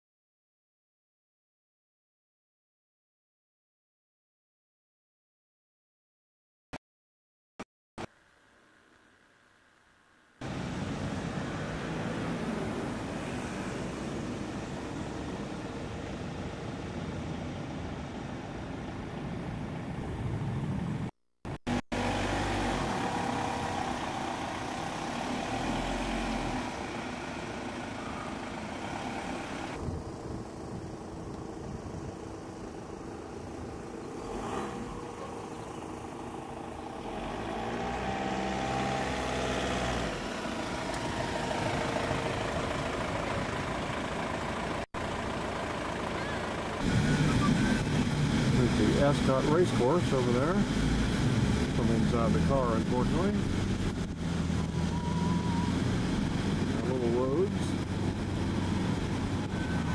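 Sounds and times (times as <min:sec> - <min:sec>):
outdoor background noise: 0:08.0 - 0:59.9
car engine running: 0:21.5 - 0:59.9.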